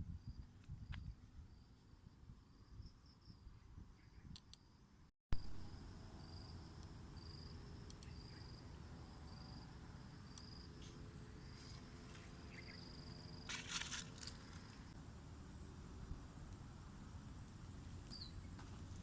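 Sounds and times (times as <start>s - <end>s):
insect chirping: 0.1s - 15.7s
rustling crunch: 13.5s - 14.9s.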